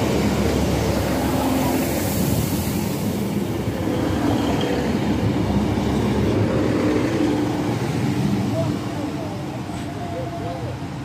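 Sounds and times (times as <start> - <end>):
diesel train passing: 0.0 - 11.0.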